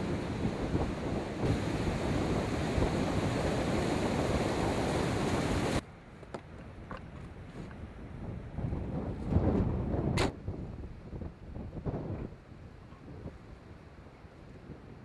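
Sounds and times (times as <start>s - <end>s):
surf: 0.0s - 5.8s
wind rushing over microphone: 0.0s - 15.0s.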